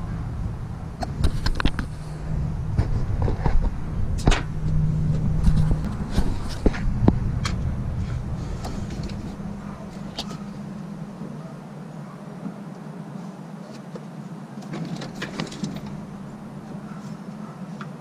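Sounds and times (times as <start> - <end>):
car engine running: 0.0 - 11.7, 15.2 - 17.0
sharp clicks and knocks: 1.0 - 2.0, 2.7 - 10.5.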